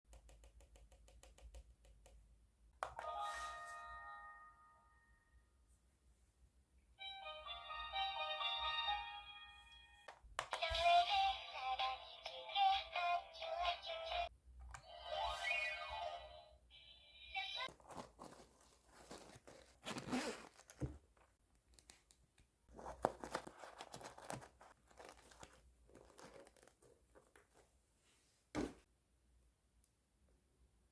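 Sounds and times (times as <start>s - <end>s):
wrapping crinkling and tearing: 17.7s - 20.8s.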